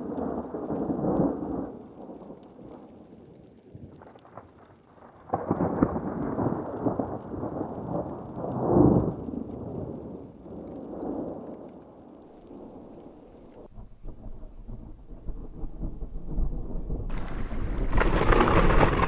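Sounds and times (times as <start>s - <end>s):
falling rain: 0.0s - 19.0s
crackling thunder clap: 12.4s - 19.0s
thunder rumbling: 12.4s - 19.0s.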